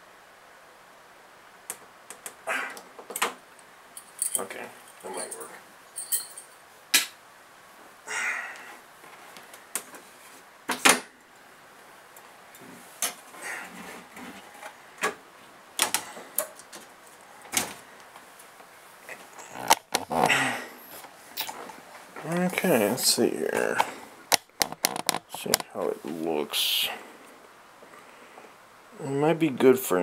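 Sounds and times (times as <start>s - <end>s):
rustle: 0.0s - 30.0s
clicks taps and knocks of tools: 24.3s - 25.7s.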